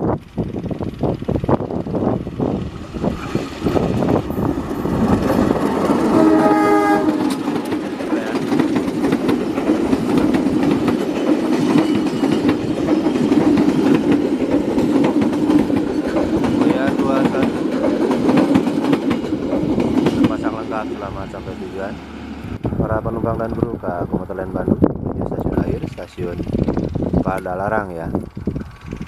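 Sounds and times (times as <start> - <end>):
train wheels rumbling and clattering: 0.0 - 29.0
knocking wheels: 0.2 - 20.5
locomotive horn blast: 6.0 - 7.4.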